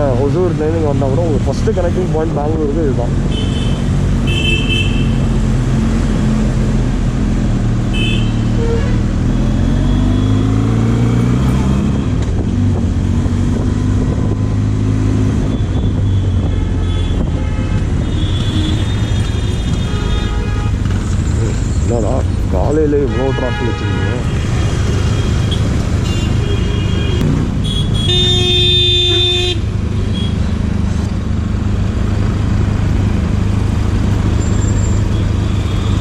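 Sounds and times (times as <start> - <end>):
car horns tooting: 23.0 - 30.4
motorcycle engine: 24.3 - 36.0.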